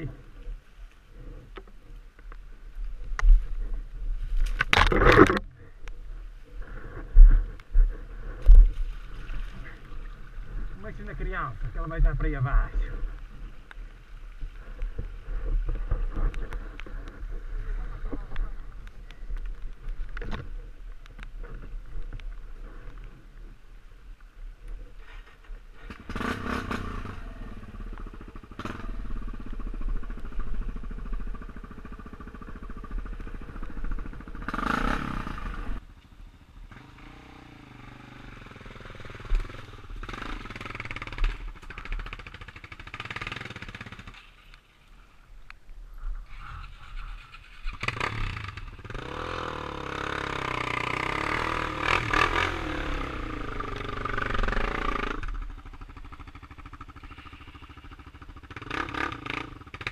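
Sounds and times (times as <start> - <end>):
motorcycle engine revving: 25.7 - 44.5, 46.3 - 59.9.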